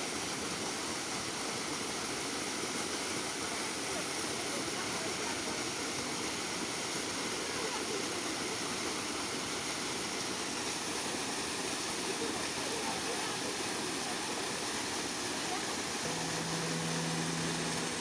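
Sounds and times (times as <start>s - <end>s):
waterfall rushing: 11.0s - 18.0s.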